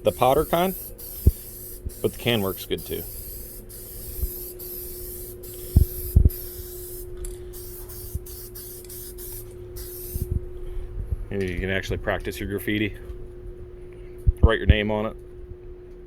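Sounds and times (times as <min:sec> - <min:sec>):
aerosol can spraying hiss: 0:00.0 - 0:10.3.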